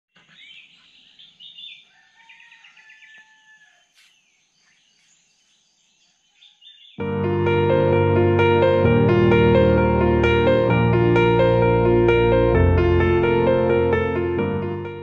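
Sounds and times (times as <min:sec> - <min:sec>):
birds chirping and whistling: 0:00.2 - 0:03.4, 0:04.3 - 0:07.0.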